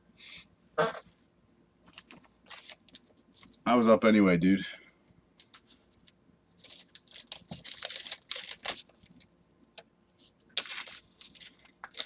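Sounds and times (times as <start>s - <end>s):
plastic wrapper crinkling: 1.9s - 3.6s, 5.4s - 9.3s, 10.6s - 12.0s.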